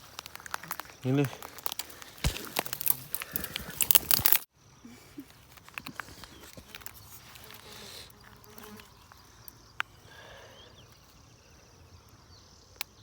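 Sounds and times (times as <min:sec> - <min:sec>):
footsteps through dry undergrowth: 0:00.0 - 0:04.5
faint rapid insect trill: 0:00.0 - 0:13.0.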